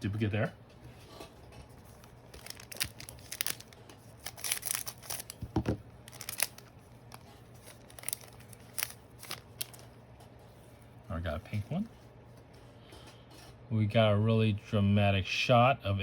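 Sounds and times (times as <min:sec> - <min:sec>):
wrapper tearing and crinkling: 0:01.9 - 0:09.9.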